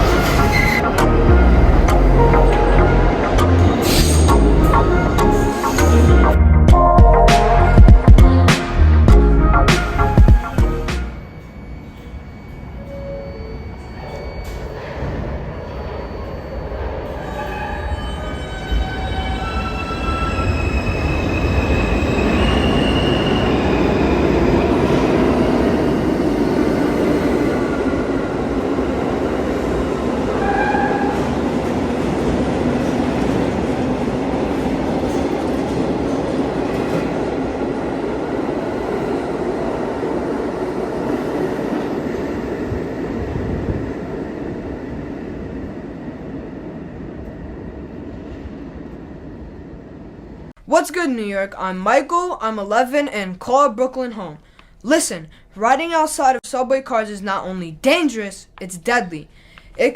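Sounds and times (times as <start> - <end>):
train wheels rumbling on rails: 10.0 - 50.5
short tone: 10.4 - 16.8.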